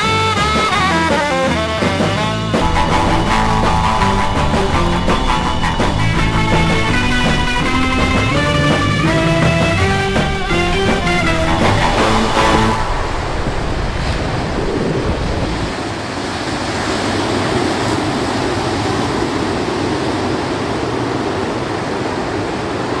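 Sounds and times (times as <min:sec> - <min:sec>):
background music: 0:00.0 - 0:13.4
wind: 0:00.0 - 0:23.0
ocean surf washing: 0:02.6 - 0:23.0.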